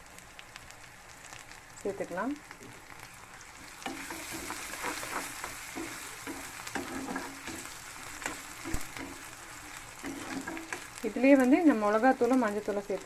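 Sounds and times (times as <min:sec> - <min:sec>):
onions sizzling in oil: 0:00.0 - 0:13.0
spatula scraping pan: 0:03.6 - 0:12.4.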